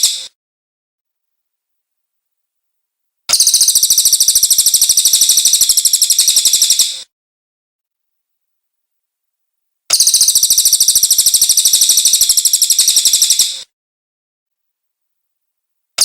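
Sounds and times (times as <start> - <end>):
bird chattering trill: 3.3 - 7.0, 9.9 - 13.6.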